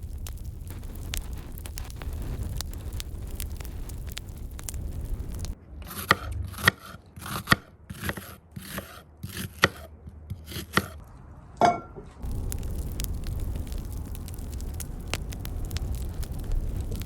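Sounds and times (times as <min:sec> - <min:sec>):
knife chopping on cutting board: 0:05.9 - 0:11.0.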